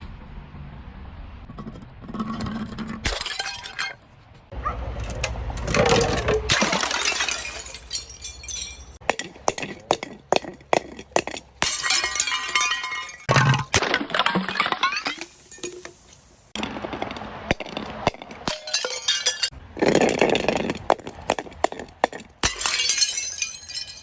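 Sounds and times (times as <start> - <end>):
glass bottles crushed and shattering: 3.0 - 4.0, 5.6 - 16.0, 16.6 - 24.0
glass pieces clinking: 5.8 - 9.0, 11.6 - 16.0, 16.9 - 24.0.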